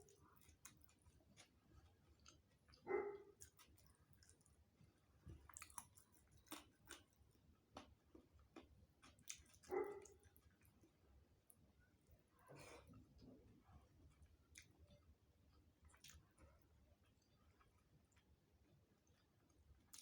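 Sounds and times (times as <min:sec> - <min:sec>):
chewing clicks: 0:00.0 - 0:04.5, 0:05.5 - 0:07.2, 0:07.8 - 0:10.7, 0:14.5 - 0:14.8.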